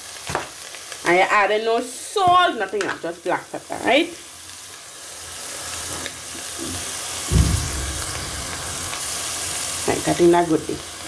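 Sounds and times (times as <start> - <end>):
fish sizzling in oil: 0.0 - 11.0
low thump: 7.3 - 9.2.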